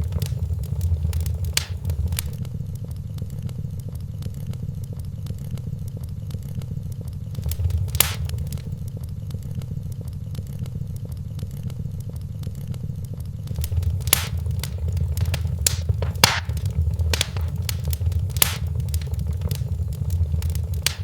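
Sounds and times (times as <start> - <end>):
fire popping sharply: 0.0 - 2.4, 7.4 - 8.8, 13.5 - 21.0
steady low rumble: 0.0 - 2.4, 7.4 - 8.9, 13.5 - 21.0
wood fire crackling: 0.0 - 2.4, 7.4 - 8.8, 13.5 - 21.0.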